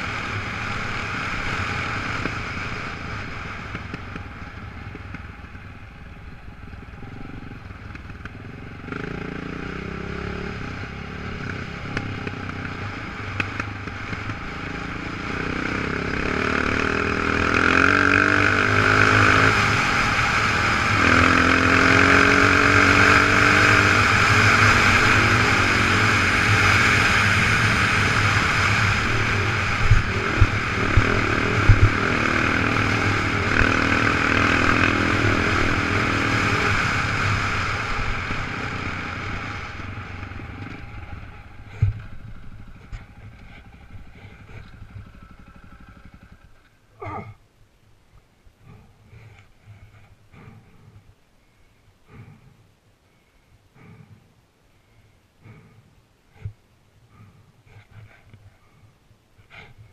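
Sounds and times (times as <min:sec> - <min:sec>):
motorcycle engine revving: 0:00.0 - 0:47.4.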